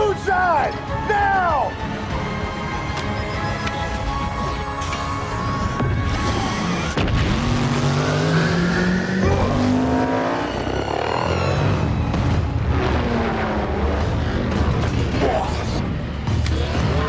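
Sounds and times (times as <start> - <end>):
film score music: 0.0 - 17.0
vehicle engines revving hard: 5.7 - 17.0.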